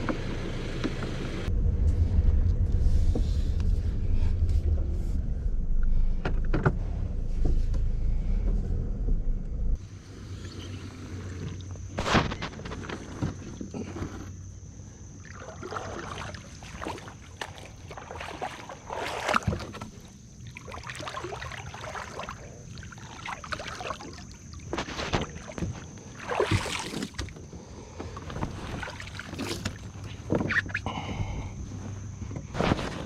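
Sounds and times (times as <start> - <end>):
water splashes: 15.2 - 27.4, 28.1 - 30.6
paddle knocking against hull: 16.0 - 20.1.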